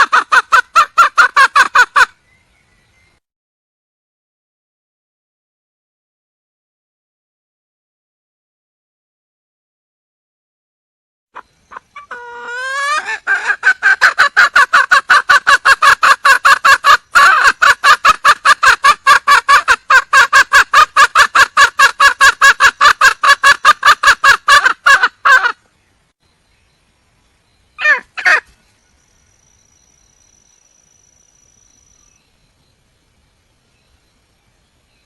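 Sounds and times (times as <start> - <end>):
hen clucking rapidly: 0.0 - 2.1, 11.4 - 25.6, 27.8 - 28.5
hen calling: 0.0 - 2.2, 11.4 - 25.7, 27.8 - 28.6.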